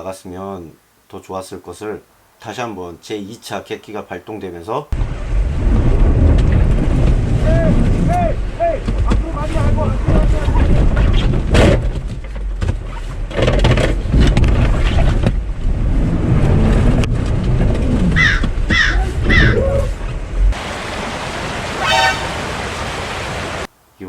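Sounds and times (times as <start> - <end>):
off-road engine rumbling: 4.9 - 23.7
short high falling cries: 21.8 - 22.5.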